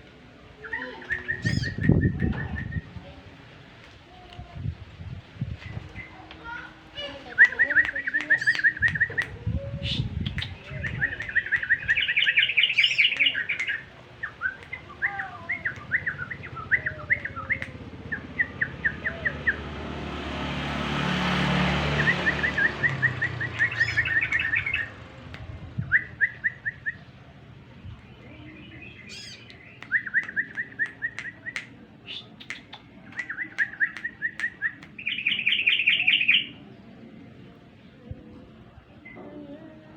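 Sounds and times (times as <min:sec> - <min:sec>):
bulbuls chattering calls: 0:07.2 - 0:19.6, 0:22.1 - 0:25.0, 0:28.8 - 0:36.6.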